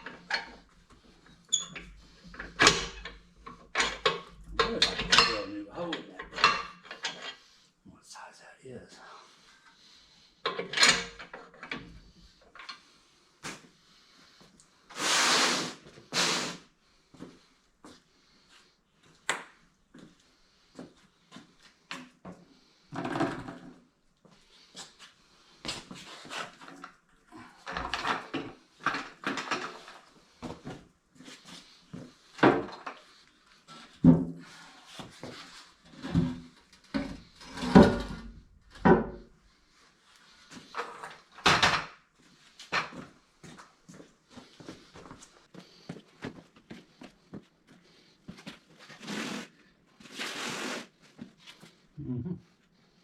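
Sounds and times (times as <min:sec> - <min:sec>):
metal tools clattering: 0:01.5 - 0:07.4, 0:10.5 - 0:11.7.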